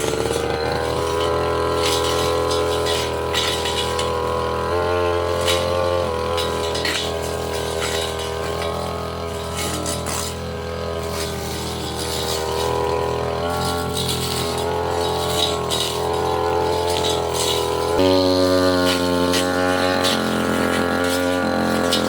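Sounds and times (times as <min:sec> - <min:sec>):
blade cutting through undergrowth: 0:00.0 - 0:22.0
brush cutter engine running: 0:00.0 - 0:22.0.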